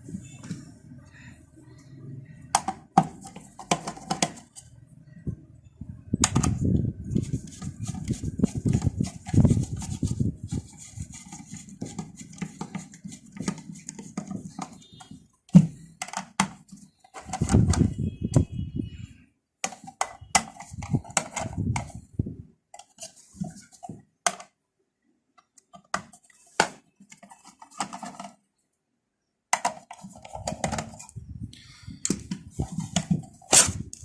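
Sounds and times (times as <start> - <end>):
rubbing and scraping: 6.3 - 18.0, 19.6 - 22.2, 22.8 - 24.0, 25.8 - 28.4, 29.6 - 31.2, 32.1 - 34.0.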